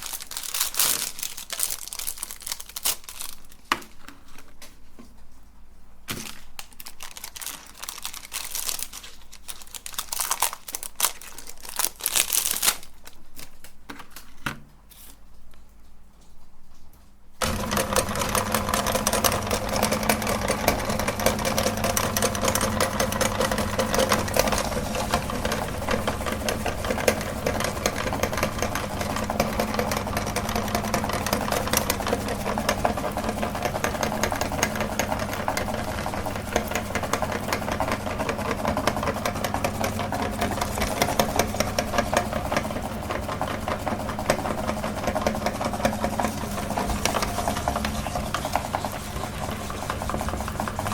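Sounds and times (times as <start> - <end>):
electric meat grinder running: 17.4 - 50.9.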